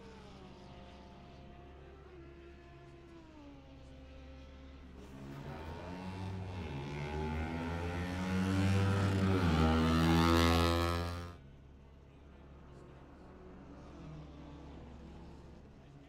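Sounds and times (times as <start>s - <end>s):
racing car engine accelerating: 4.9s - 11.4s.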